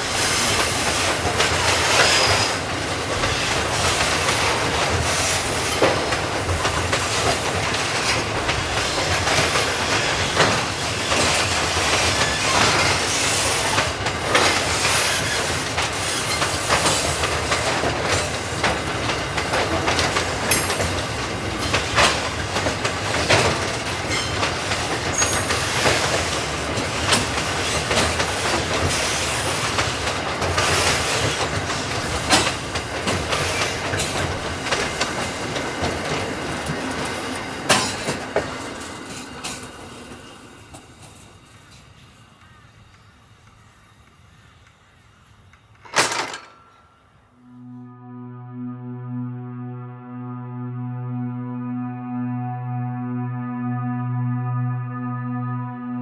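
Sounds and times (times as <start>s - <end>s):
train wheels clattering over rails: 0.0s - 47.1s
high wheel squeals: 25.1s - 29.6s.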